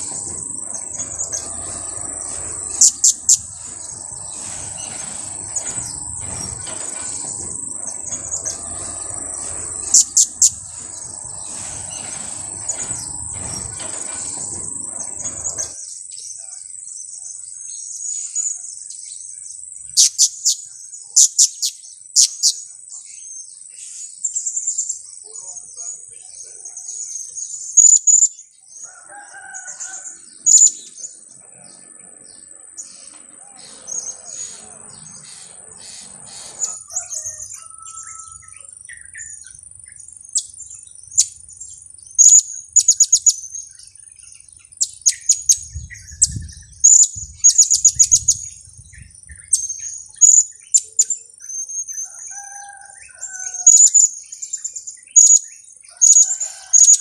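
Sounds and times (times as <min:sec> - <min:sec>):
thin high whine: 0:00.0 - 0:15.8.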